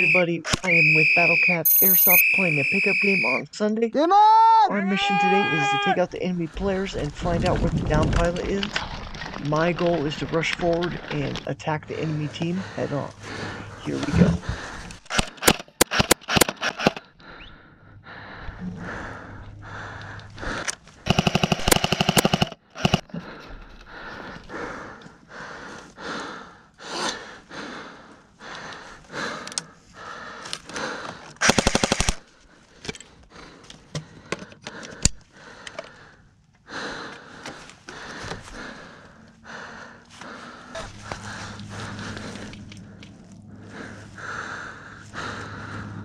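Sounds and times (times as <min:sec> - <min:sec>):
airsoft guns firing bursts: 0:15.1 - 0:17.0, 0:21.0 - 0:23.1, 0:31.4 - 0:32.2.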